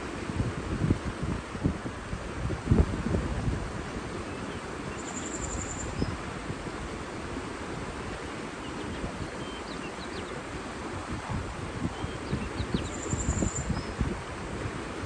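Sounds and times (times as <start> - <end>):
water rushing: 0.0 - 15.0
wind: 0.0 - 15.0
faint bird chirps: 4.3 - 6.2, 8.6 - 10.4, 11.9 - 14.0.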